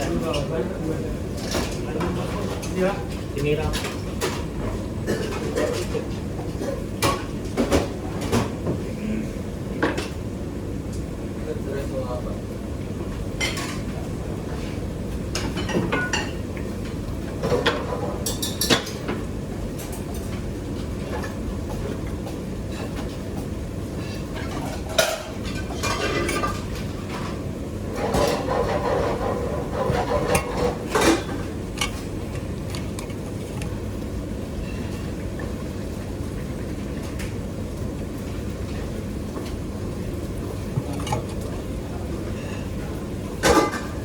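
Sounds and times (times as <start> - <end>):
kitchen utensils clinking: 24.4 - 33.3, 40.8 - 41.6, 43.4 - 44.0.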